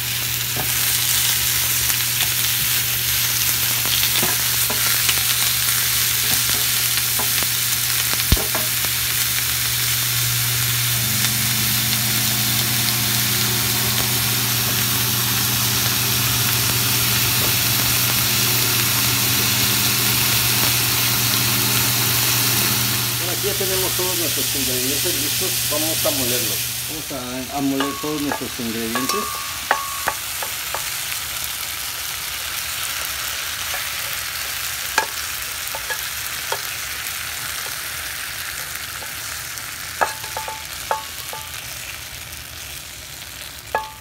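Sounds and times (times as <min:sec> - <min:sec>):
vegetables sizzling in oil: 0:00.0 - 0:44.0
low hum: 0:06.8 - 0:30.9
higher hum: 0:07.0 - 0:30.9.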